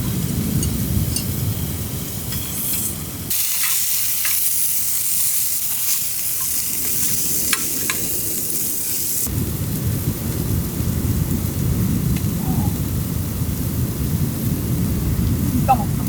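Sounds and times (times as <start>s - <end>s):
food sizzling in a hot pan: 0.1s - 12.1s
low rumble: 6.7s - 16.0s.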